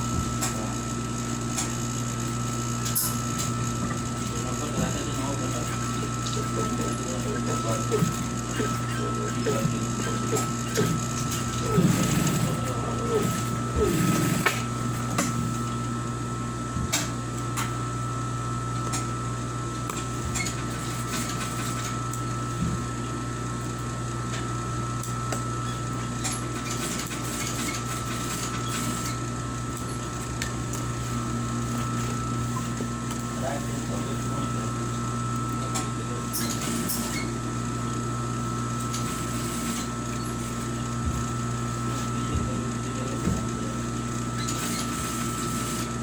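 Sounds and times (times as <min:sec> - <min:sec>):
steady mechanical hum: 0:00.0 - 0:46.0
thin high whine: 0:02.8 - 0:15.8
person speaking: 0:04.3 - 0:14.1.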